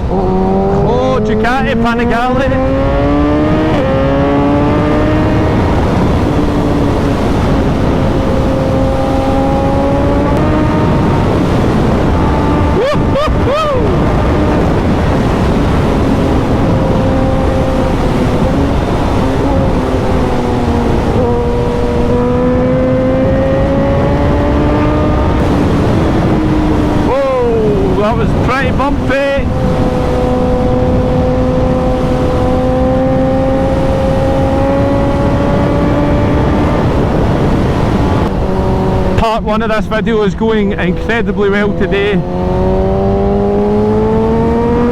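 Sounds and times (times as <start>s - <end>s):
motorcycle engine cruising: 0.0s - 44.9s
wind rush on microphone: 0.0s - 44.9s.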